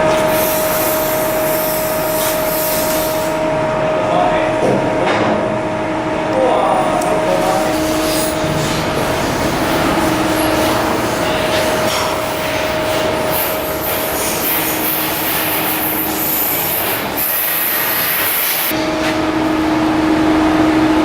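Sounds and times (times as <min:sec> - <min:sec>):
machine hum: 0:00.0 - 0:21.0
loud high hiss: 0:07.3 - 0:19.0.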